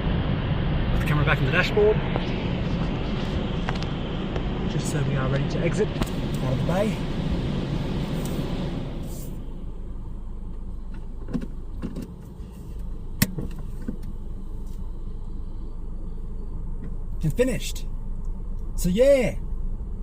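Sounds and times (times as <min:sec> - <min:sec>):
dryer blowers rushing air: 0:00.0 - 0:14.9
low cabin rumble: 0:00.0 - 0:20.0.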